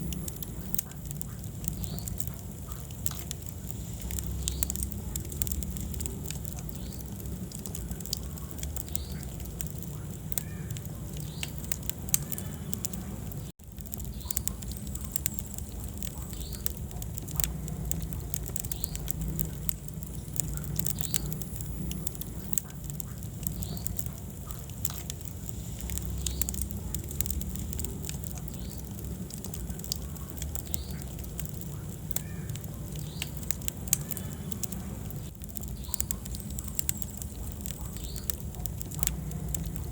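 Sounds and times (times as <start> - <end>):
fire crackling in fireplace: 0.0 - 39.9.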